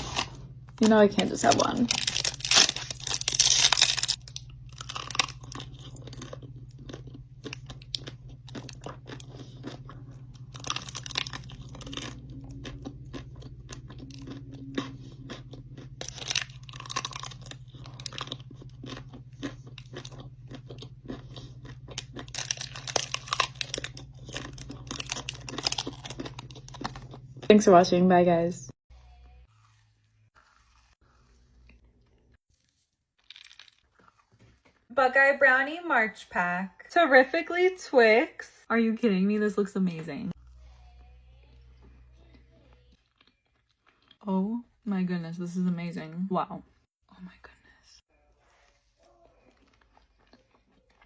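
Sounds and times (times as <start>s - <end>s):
steady low hum: 0.0s - 32.4s
crunchy chewing: 1.4s - 27.5s, 28.9s - 34.9s, 40.3s - 44.2s, 48.3s - 51.0s.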